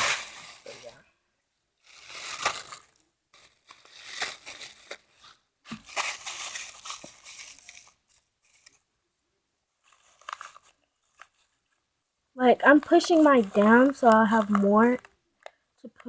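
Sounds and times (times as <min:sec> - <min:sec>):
paper crinkling: 0:00.0 - 0:01.0, 0:01.8 - 0:08.8, 0:09.8 - 0:11.8, 0:12.6 - 0:15.1.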